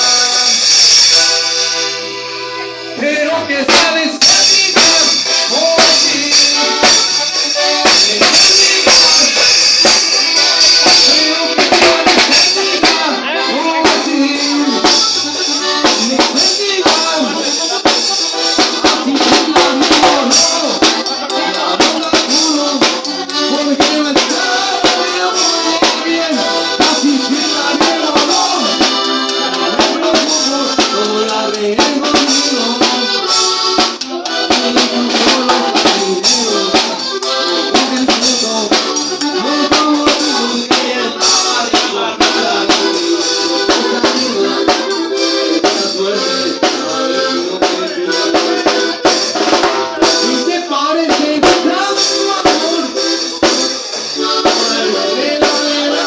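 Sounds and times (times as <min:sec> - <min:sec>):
drum kit beat: 0:00.0 - 0:02.3, 0:03.6 - 0:56.0
band music: 0:00.0 - 0:56.0.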